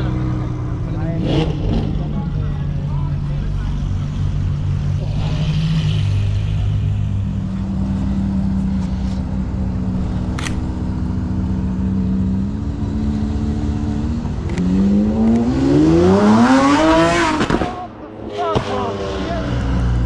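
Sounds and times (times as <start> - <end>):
car engines idling at low revs: 0.0 - 14.6
sports car engine revving past: 11.0 - 20.0.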